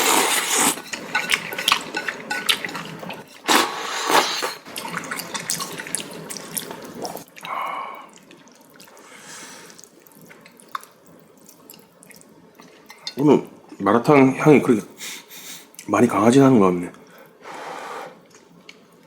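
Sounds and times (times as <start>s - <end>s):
liquid dripping and splashing: 4.7s - 9.0s, 9.7s - 13.2s.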